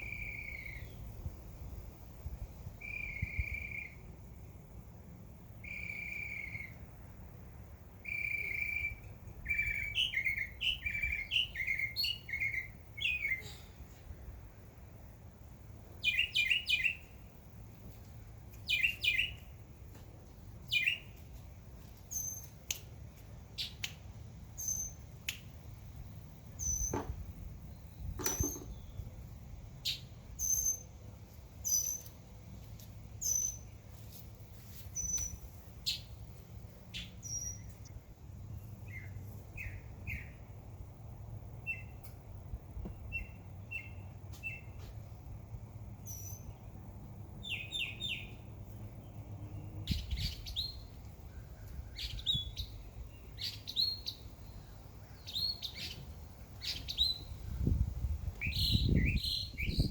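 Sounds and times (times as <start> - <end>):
birds chirping: 8.0 - 13.9, 47.4 - 59.9.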